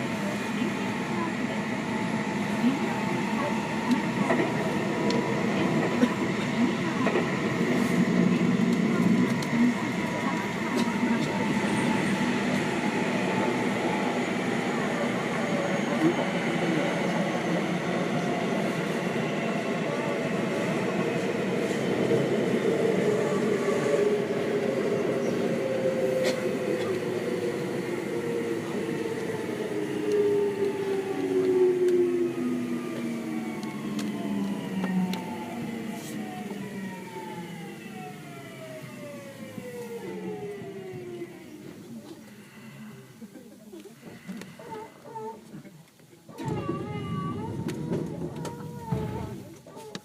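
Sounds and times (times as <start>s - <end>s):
train wheels rumbling on rail: 0.0s - 43.1s, 46.4s - 50.0s
train traction motor whine: 22.8s - 42.7s.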